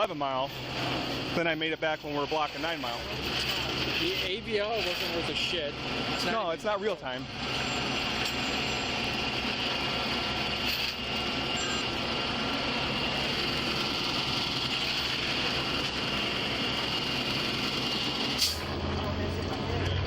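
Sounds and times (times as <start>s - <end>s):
high-pitched whine: 0.0s - 20.0s
vehicle engine low rumble: 0.0s - 20.0s.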